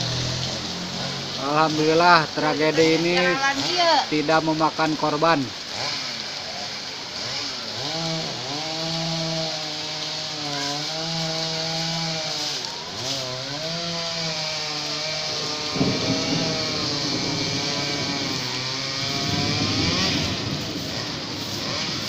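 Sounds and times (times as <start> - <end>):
chainsaw cutting: 0.0 - 4.4, 5.2 - 22.0
rough rumble: 5.5 - 22.0.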